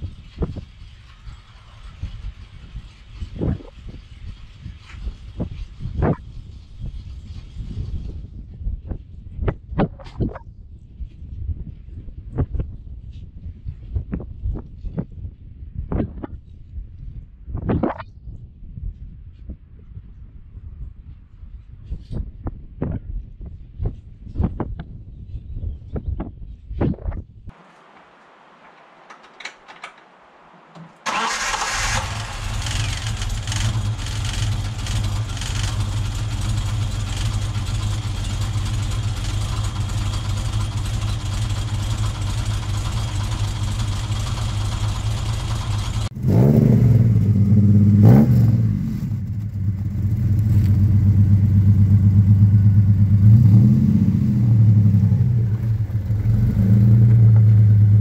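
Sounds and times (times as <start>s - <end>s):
car engine starting and idling: 27.5s - 58.0s
car engine revving at exhaust: 31.8s - 58.0s.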